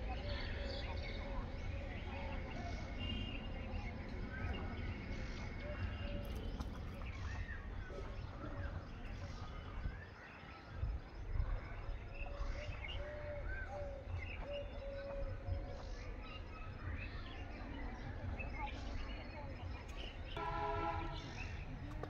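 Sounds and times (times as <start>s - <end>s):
steady low rumble: 0.0s - 10.0s
repeated low bird notes: 0.0s - 22.0s.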